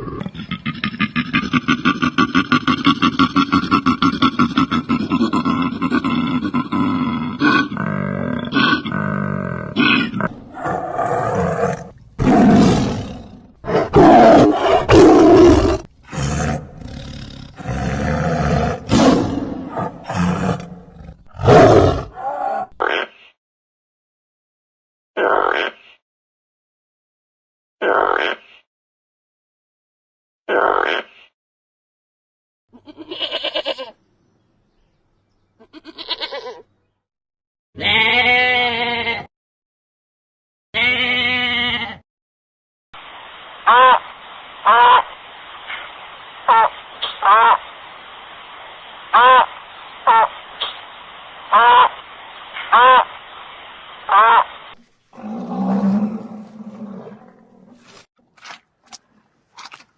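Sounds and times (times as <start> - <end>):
livestock bleating: 32.8 - 34.0, 35.6 - 36.7, 37.8 - 39.3, 40.8 - 42.0.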